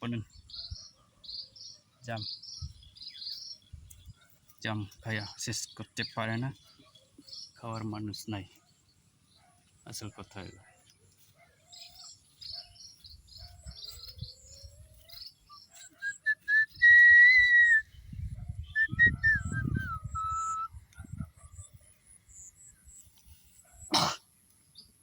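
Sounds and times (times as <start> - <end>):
small birds chirping: 0.0 - 25.0
whistled bird notes: 12.6 - 20.8.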